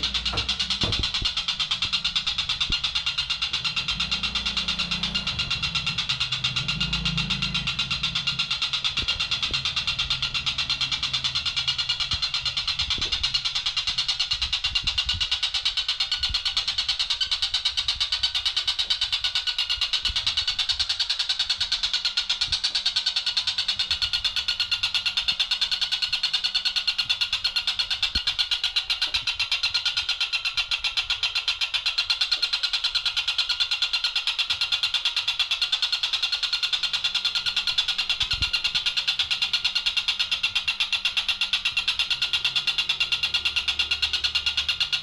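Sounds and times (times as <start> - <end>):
kingfisher chattering: 0.0 - 45.0.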